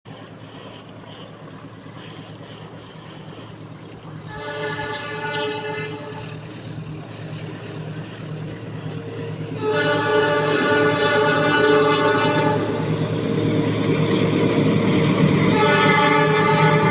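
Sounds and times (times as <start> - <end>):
diesel locomotive humming: 0.1 - 16.9
locomotive air horn chord: 4.3 - 6.4, 9.4 - 13.2, 15.2 - 16.9.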